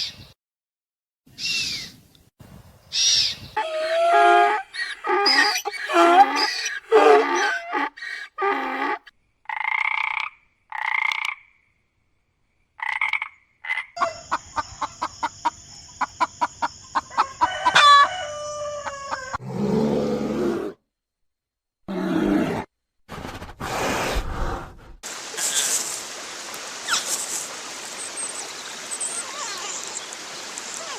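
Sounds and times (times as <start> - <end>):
evenly spaced pulsing call: 3.6 - 9.0
short animal calls: 3.6 - 9.1.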